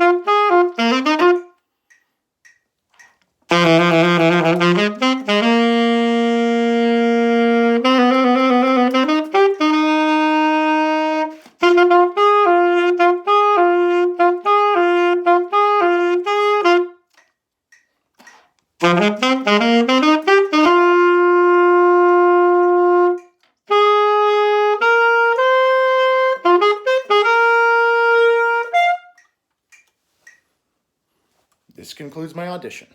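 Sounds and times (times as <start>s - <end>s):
solo wind instrument playing: 0.0s - 1.6s, 3.5s - 17.0s, 18.8s - 29.2s.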